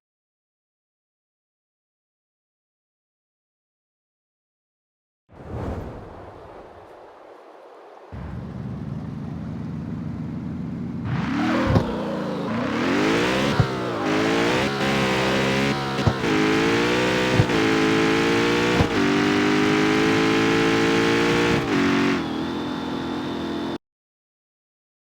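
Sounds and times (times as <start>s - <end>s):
car engine accelerating hard: 8.2s - 23.8s.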